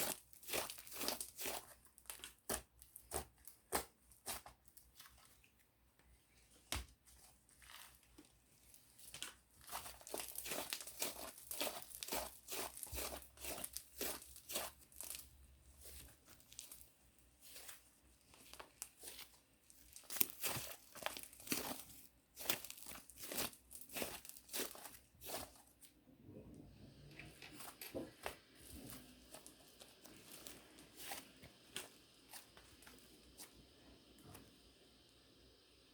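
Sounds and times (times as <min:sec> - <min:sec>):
slime squished by hand crackling: 0:00.0 - 0:05.2, 0:09.0 - 0:25.7.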